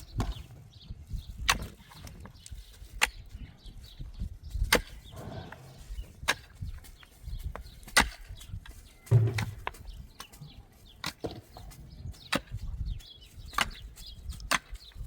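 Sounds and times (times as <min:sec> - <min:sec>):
axe chopping wood: 0:01.4 - 0:01.8, 0:07.9 - 0:08.3, 0:12.3 - 0:12.7, 0:13.5 - 0:14.8.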